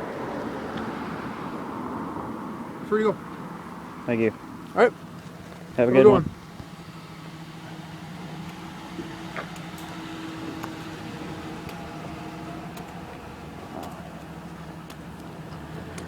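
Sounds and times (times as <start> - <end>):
car engine idling: 0.0 - 16.0
light ticks: 11.6 - 11.9.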